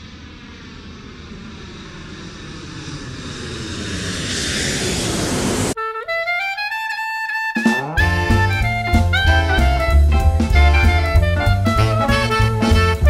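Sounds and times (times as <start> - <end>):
aircraft engine noise: 0.0 - 13.0
woodwind sliding upward: 0.3 - 13.0
jazz band playing: 7.5 - 13.0.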